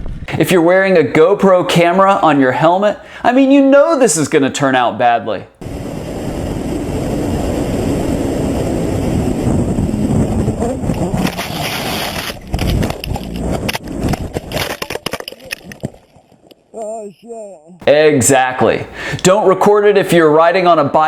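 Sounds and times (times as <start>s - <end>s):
wind noise: 5.6s - 16.5s
motorcycle engine: 6.8s - 14.7s
crash knocks and scrapes: 11.2s - 16.0s.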